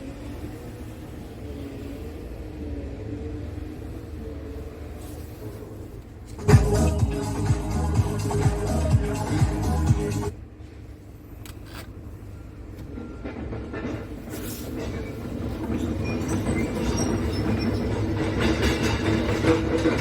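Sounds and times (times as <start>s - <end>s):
truck diesel engine rumbling: 6.4s - 10.3s.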